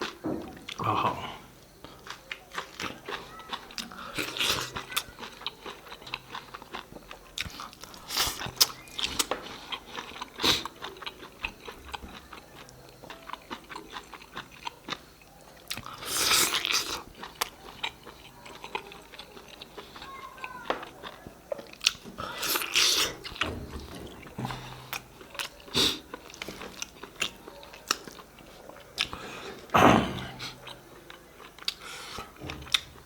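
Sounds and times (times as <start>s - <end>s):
crunchy bites: 0.0s - 20.0s
person chewing food: 0.0s - 33.0s.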